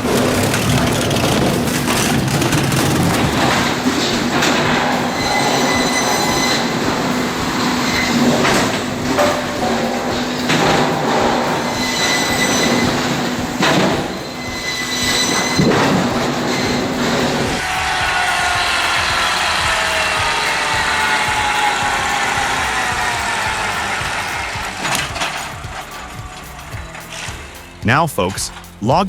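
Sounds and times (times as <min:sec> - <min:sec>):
firewood processor humming: 0:00.0 - 0:28.0
high metallic whining: 0:00.0 - 0:29.0
knocks of wood and metal: 0:00.1 - 0:18.3.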